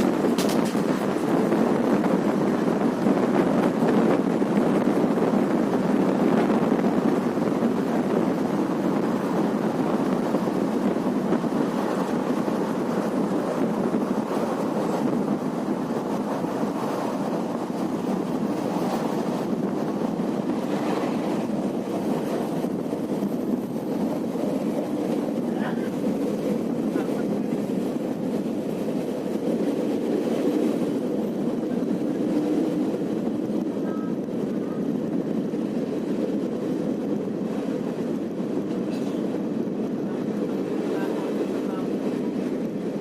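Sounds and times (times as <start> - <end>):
train rumbling on track: 0.0 - 43.0
wind noise on microphone: 0.0 - 43.0.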